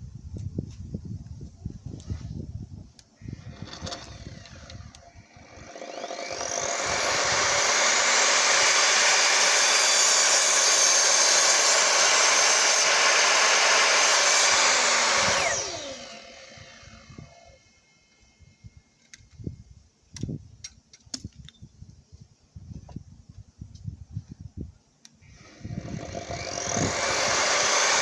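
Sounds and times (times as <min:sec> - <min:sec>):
miter saw cutting wood: 0:03.2 - 0:18.2, 0:25.3 - 0:28.0.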